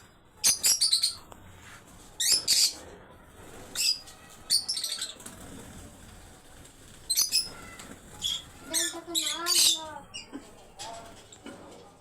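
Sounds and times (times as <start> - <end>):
birds chirping: 0.4 - 1.3, 3.6 - 11.5.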